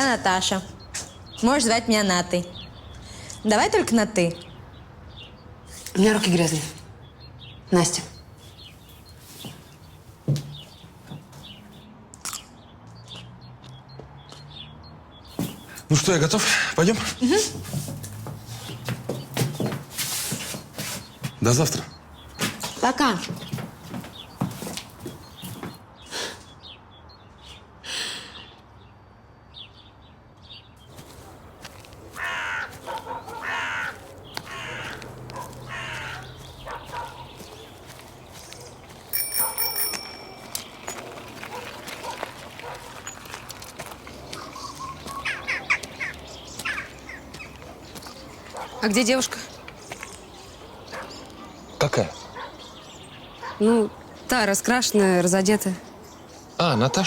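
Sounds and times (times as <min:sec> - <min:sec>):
small birds chirping: 0:00.0 - 0:29.0, 0:29.6 - 0:57.0
faint outdoor background: 0:00.0 - 0:57.0
crow cawing: 0:31.6 - 0:37.3, 0:44.4 - 0:47.6.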